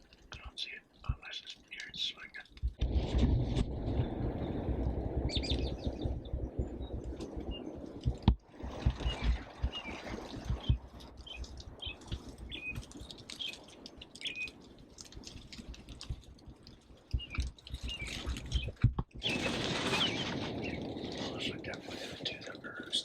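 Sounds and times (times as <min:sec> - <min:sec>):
small songbirds chirping: 0:00.2 - 0:02.6, 0:04.0 - 0:08.2, 0:08.9 - 0:14.7, 0:17.0 - 0:23.0
low thumps and rumble: 0:02.5 - 0:12.8.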